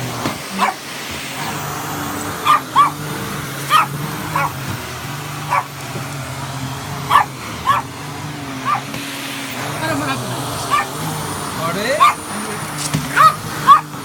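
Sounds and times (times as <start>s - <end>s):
vacuum cleaner motor drone: 0.0s - 14.0s
dog barking sharply: 0.5s - 0.8s, 2.4s - 3.0s, 3.7s - 4.6s, 5.5s - 5.7s, 7.1s - 7.9s, 8.6s - 8.9s, 10.7s - 11.0s, 12.0s - 12.2s, 13.1s - 13.9s.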